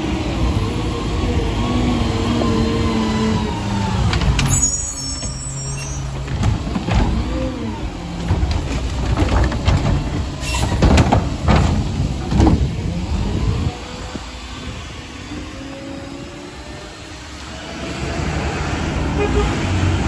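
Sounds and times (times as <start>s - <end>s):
garbage truck diesel engine revving: 0.0s - 20.0s
metal clanks and knocks: 4.1s - 13.0s.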